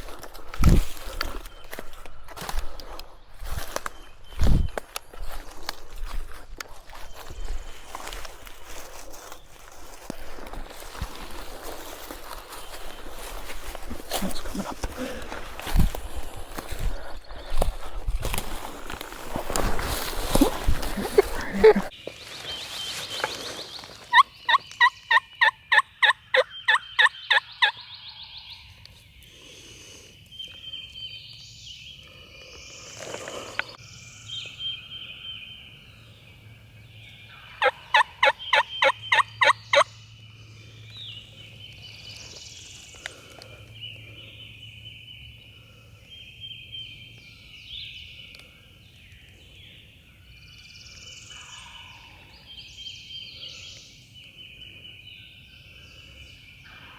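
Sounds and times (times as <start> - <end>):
songbirds chirping faintly: 0.0 - 56.9
wild turkey yelping: 20.4 - 22.0, 24.1 - 27.9, 37.3 - 40.0.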